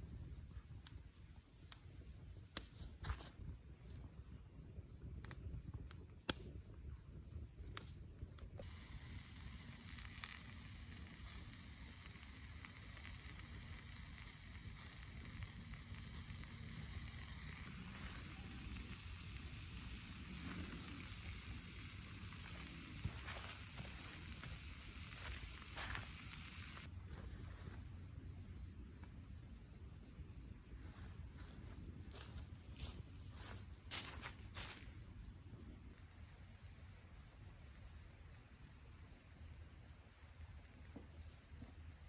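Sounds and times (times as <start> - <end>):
food sizzling in a skillet: 8.6 - 26.9.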